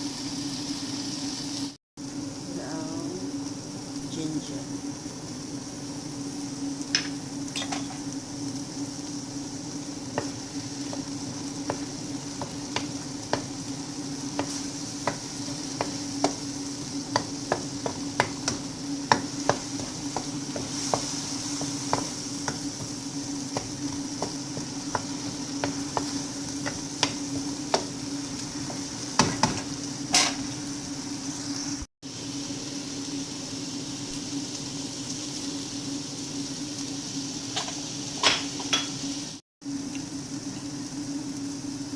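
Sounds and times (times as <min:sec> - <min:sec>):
food sizzling in oil: 0:00.0 - 0:41.9
utensil scraping frying pan: 0:10.1 - 0:30.6.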